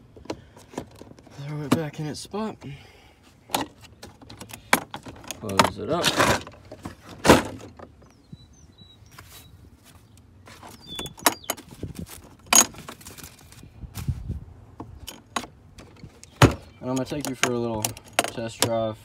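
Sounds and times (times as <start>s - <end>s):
objects clacking and knocking: 3.5s - 8.0s, 14.8s - 18.8s.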